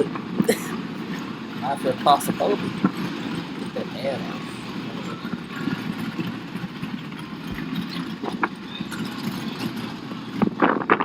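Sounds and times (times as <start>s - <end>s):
car engine idling: 0.0s - 8.7s.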